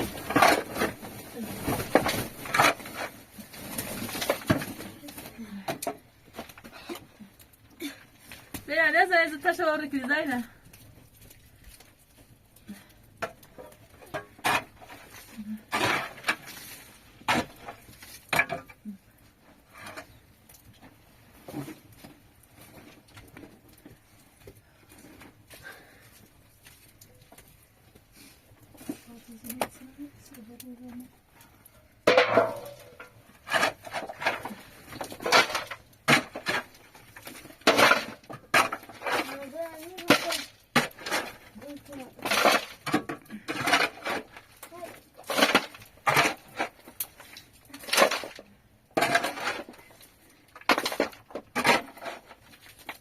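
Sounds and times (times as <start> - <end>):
sharp knocks and clattering scrapes: 0.0 - 7.1, 13.1 - 25.8, 31.4 - 53.0
household items knocking and clinking: 32.0 - 44.6.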